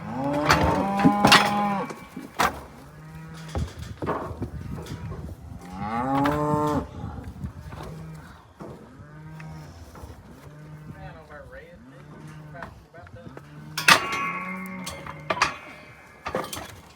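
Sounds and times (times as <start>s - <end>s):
faint low cattle moos: 4.5s - 16.7s
sharp knocks: 13.8s - 16.9s.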